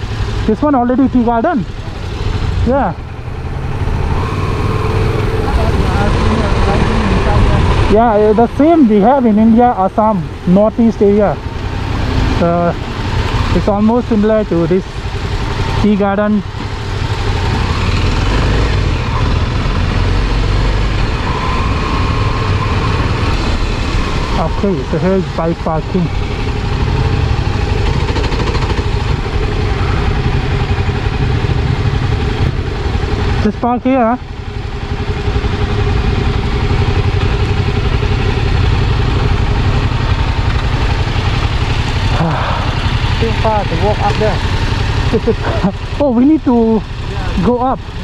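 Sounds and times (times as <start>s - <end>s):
motorcycle engine rumbling: 0.0s - 48.0s
rushing noise: 17.4s - 32.9s.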